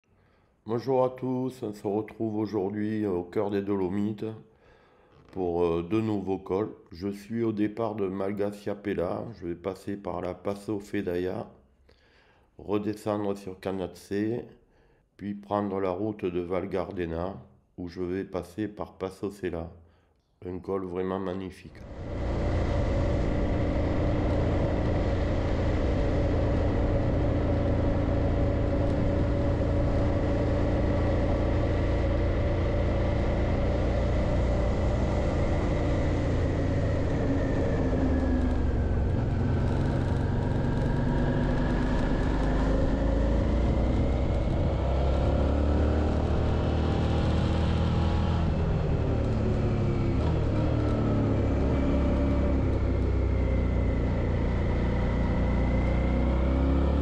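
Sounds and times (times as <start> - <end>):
motorcycle engine running: 21.8 - 57.0.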